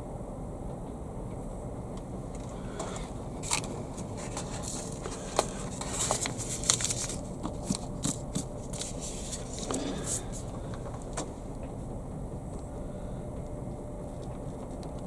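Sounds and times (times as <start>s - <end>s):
low background rumble: 0.0s - 15.0s
hands handling seeds and pots: 2.4s - 11.3s.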